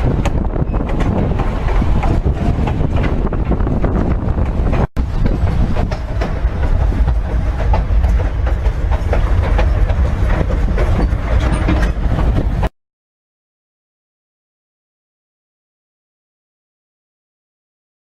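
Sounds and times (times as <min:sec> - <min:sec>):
train rumbling on rails: 0:00.0 - 0:12.7
wheels clacking over rail joints: 0:00.0 - 0:12.7.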